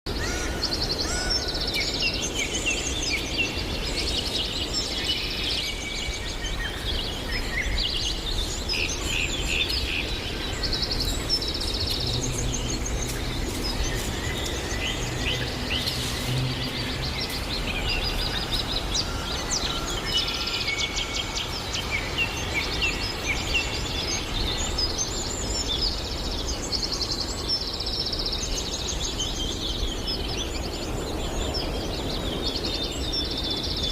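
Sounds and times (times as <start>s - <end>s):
songbirds singing: 0.1s - 33.9s.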